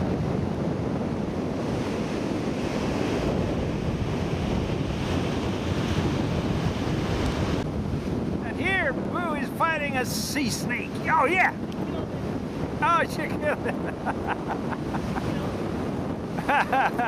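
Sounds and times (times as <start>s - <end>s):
surf breaking on a beach: 0.0s - 17.0s
wind buffeting microphone: 0.0s - 17.0s.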